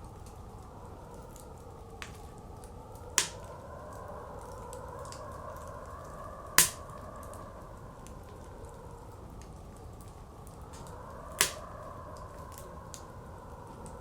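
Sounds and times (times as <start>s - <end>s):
howling blizzard wind: 0.0s - 14.0s
wood fire crackling: 0.0s - 14.0s.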